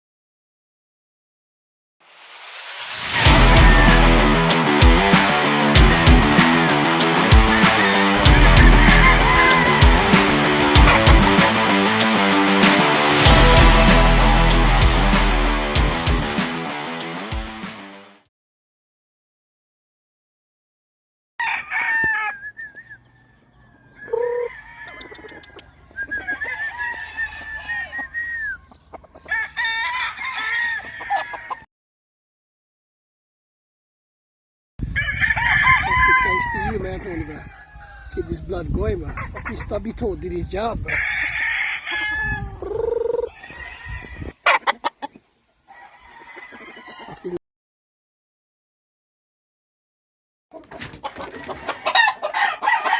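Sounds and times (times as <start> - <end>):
rooster crowing loudly: 3.0 - 12.1, 21.4 - 31.7, 34.9 - 38.2, 40.9 - 42.6, 43.2 - 44.5, 45.7 - 47.4, 51.3 - 52.9
chickens clucking: 3.0 - 14.4, 21.4 - 31.6, 36.6 - 40.4, 42.0 - 47.4, 50.5 - 52.9.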